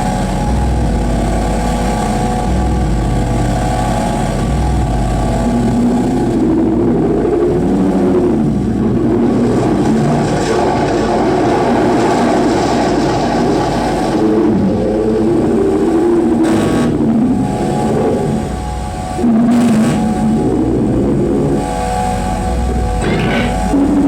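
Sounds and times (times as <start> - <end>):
distorted electronic noise music: 0.0 - 24.0
warbling pitched drones: 0.0 - 24.0.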